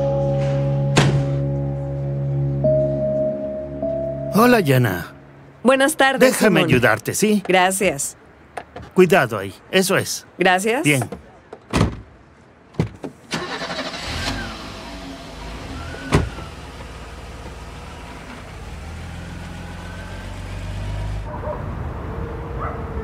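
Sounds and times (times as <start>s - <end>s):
soft music: 0.0s - 6.7s
car engine running: 13.9s - 21.3s.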